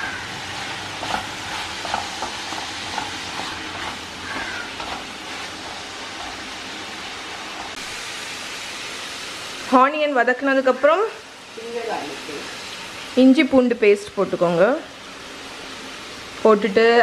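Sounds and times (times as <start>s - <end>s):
onions sizzling in oil: 0.0s - 17.0s
wooden spatula scraping a pan: 0.1s - 6.6s.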